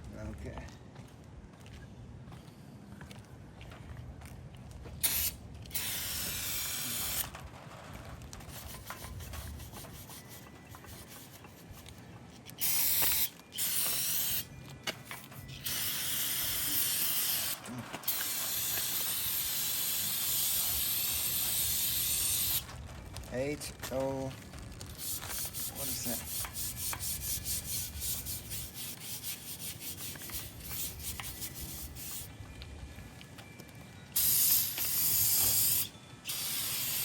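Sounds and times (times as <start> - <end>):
aerosol spray can hissing: 5.0 - 7.2, 12.6 - 14.5, 15.5 - 22.6, 25.0 - 32.3, 34.2 - 37.0.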